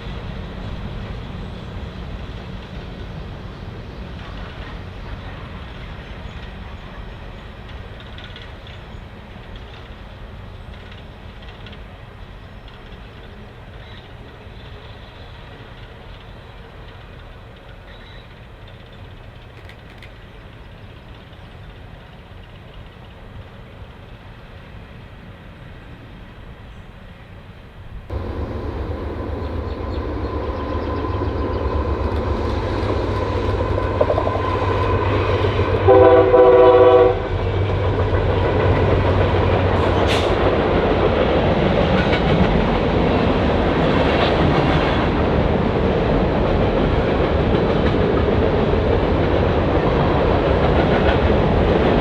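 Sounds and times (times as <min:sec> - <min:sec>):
clickety-clack of train cars: 0:00.0 - 0:25.8, 0:28.1 - 0:52.0
train rumble: 0:00.0 - 0:52.0
train air horn blast: 0:35.6 - 0:37.4.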